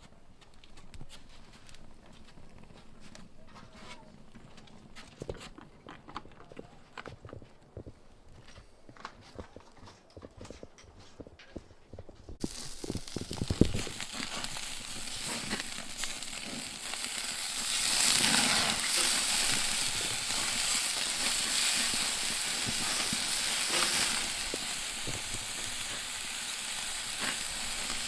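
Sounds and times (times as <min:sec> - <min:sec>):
wood fire crackling: 0:00.2 - 0:06.1, 0:10.4 - 0:28.0
food sizzling on a grill: 0:12.4 - 0:28.0.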